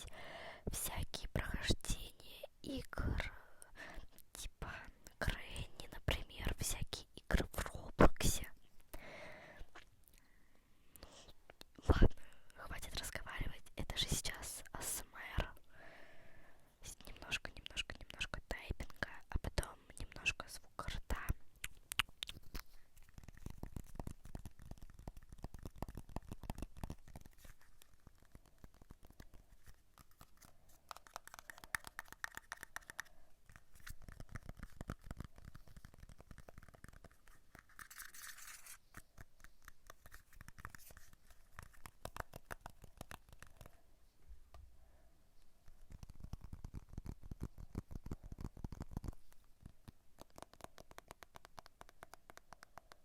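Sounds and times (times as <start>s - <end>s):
close scratching and tapping: 21.1s - 43.8s, 45.6s - 53.0s.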